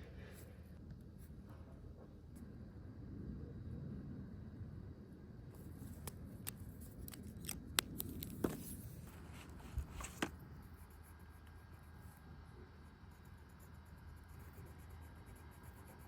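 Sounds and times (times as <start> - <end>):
sharp clicks and snips: 6.0 - 8.4.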